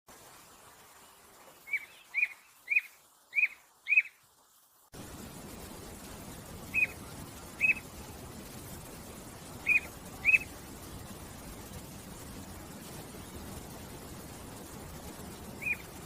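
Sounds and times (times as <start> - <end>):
background hiss: 0.1 - 16.0
songbird chirping: 0.9 - 4.3, 6.6 - 7.9, 9.6 - 10.6, 15.5 - 16.0.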